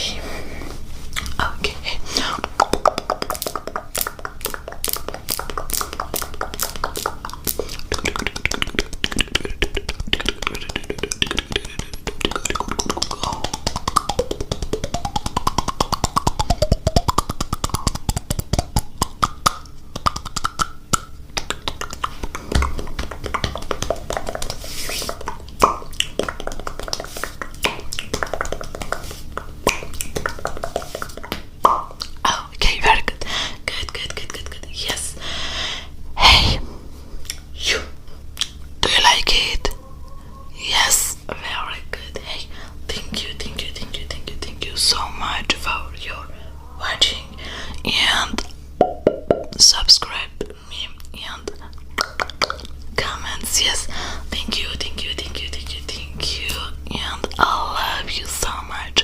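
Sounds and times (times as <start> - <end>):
tongue and lip clicks: 1.1 - 1.4, 2.2 - 35.1, 37.2 - 37.8, 38.4 - 39.8, 46.8 - 53.8.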